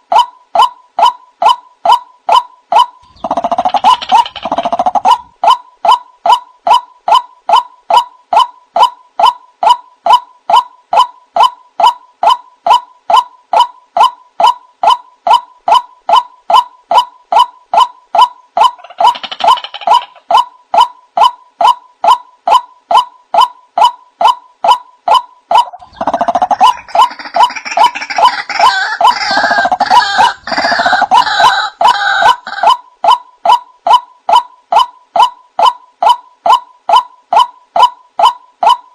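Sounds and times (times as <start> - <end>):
waterhen calling: 3.0 - 6.8, 25.5 - 32.8.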